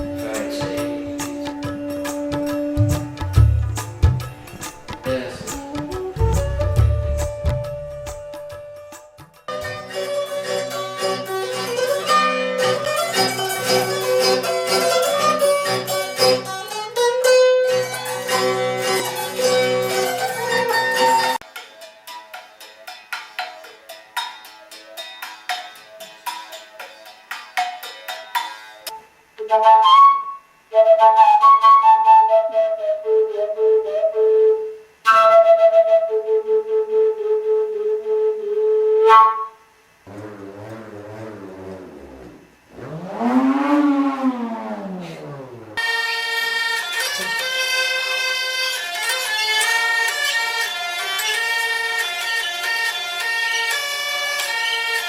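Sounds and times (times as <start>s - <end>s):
clay flute tune: 0.0s - 9.5s, 29.4s - 46.0s
instrumental music sustained notes: 0.0s - 21.4s, 28.8s - 55.0s.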